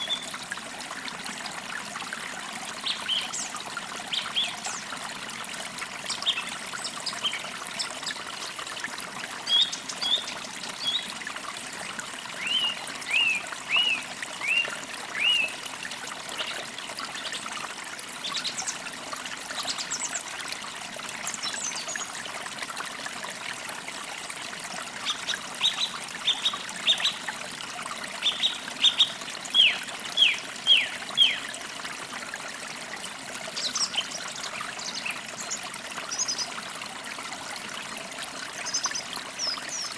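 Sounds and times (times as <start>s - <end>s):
stream trickling: 0.0s - 39.9s
songbirds calling: 12.4s - 15.6s, 25.0s - 27.2s, 28.2s - 31.5s, 38.6s - 39.9s.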